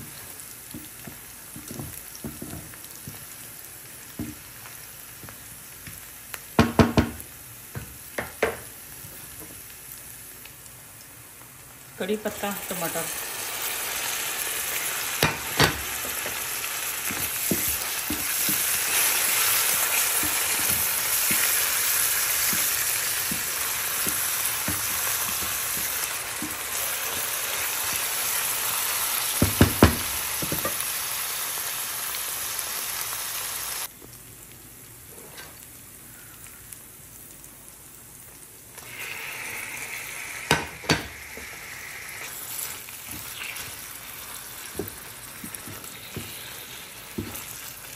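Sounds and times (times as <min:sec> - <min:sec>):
vegetables sizzling in oil: 0:00.0 - 0:47.9
spatula stirring in pan: 0:14.8 - 0:28.6, 0:42.1 - 0:47.9.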